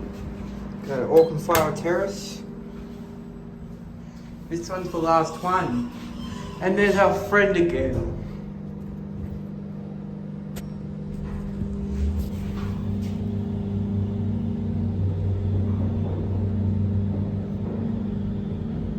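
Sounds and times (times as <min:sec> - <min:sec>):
lift electrical hum: 0:00.0 - 0:18.9
low rumble: 0:07.8 - 0:18.9.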